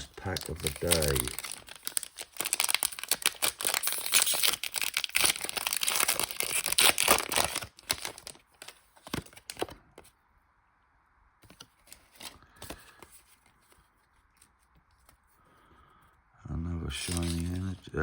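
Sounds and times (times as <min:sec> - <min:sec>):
foil wrapper tearing and crinkling: 0:00.0 - 0:09.8, 0:17.0 - 0:17.6.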